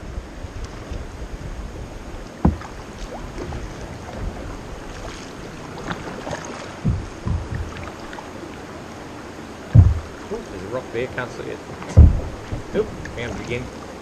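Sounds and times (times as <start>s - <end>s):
wind on microphone: 0.0s - 6.2s, 6.8s - 8.2s, 9.6s - 10.5s, 11.9s - 14.0s
running water: 0.0s - 14.0s
paddle strokes splashing: 0.4s - 14.0s
short low thumps: 2.4s - 2.8s, 6.8s - 8.2s, 9.6s - 10.5s, 11.9s - 13.3s.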